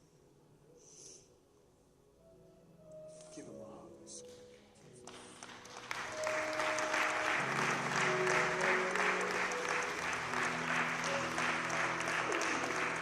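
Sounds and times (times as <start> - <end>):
congregation applauding: 5.0 - 13.0
church music chords: 6.0 - 13.0.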